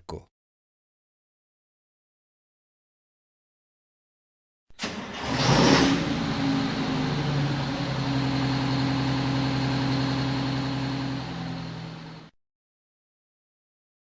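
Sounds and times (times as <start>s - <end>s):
large engine humming: 4.8s - 12.3s.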